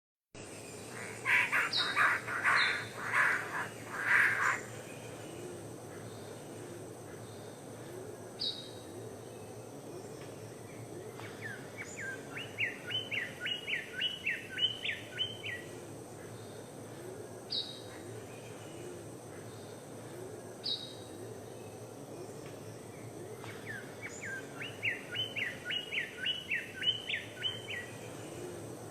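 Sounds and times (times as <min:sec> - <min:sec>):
background hiss: 0:00.4 - 0:28.9
harsh bird calls: 0:00.7 - 0:05.4.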